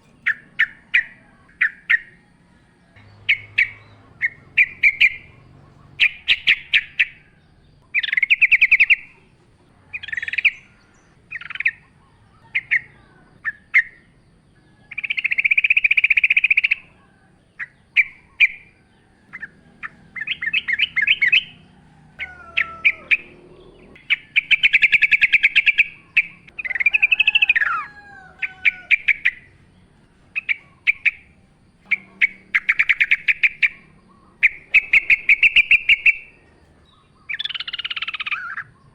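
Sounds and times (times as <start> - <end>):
thin gliding whistles: 0.0 - 9.3, 14.7 - 29.8, 30.4 - 38.9
bird bubbling chatter: 30.3 - 38.9.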